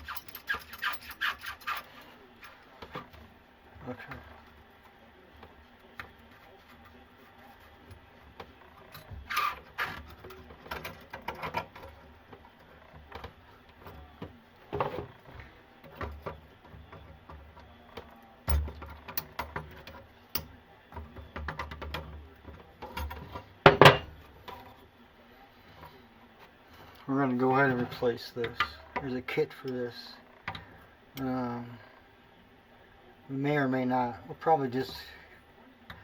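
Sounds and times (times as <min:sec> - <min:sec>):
plumbing parts knocking and scraping: 0:05.3 - 0:24.7.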